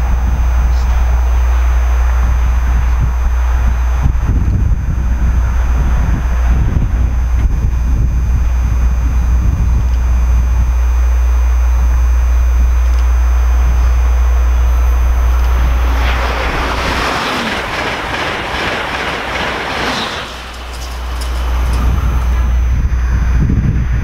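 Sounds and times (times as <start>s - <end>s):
train rush of wheel and air: 0.0s - 7.8s, 13.5s - 24.0s
steady low rumble: 0.0s - 24.0s.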